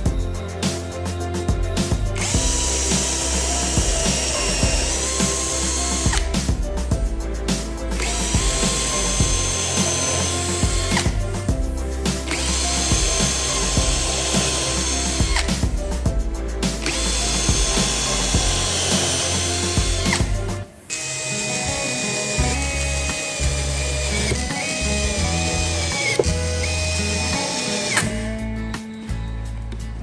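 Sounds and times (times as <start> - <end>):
background music with beat: 0.0 - 30.0
power tool motor whining: 2.3 - 6.3, 8.0 - 11.2, 12.3 - 15.5, 16.9 - 20.3, 20.9 - 28.1.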